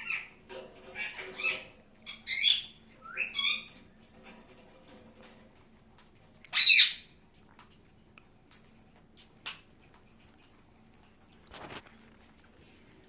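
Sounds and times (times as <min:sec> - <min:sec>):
faint clicks and rustles: 0:02.8 - 0:06.5, 0:07.2 - 0:13.0
parrot high call: 0:06.5 - 0:07.1.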